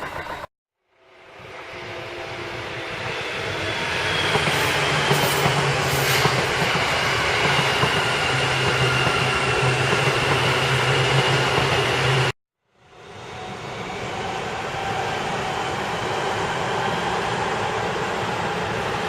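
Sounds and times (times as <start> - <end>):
train wheel clacks: 0.0 - 0.5
electric train passing: 0.0 - 19.0.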